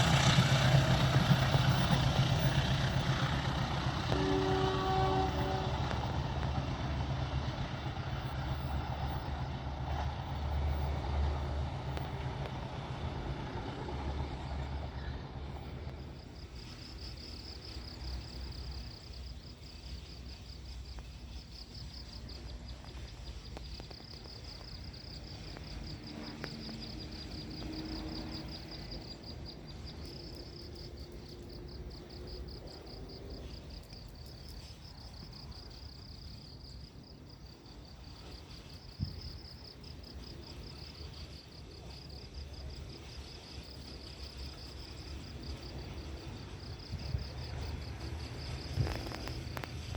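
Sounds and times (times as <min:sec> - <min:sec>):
diesel locomotive rumble: 0:00.0 - 0:49.9
insects chirping trill: 0:15.8 - 0:49.9.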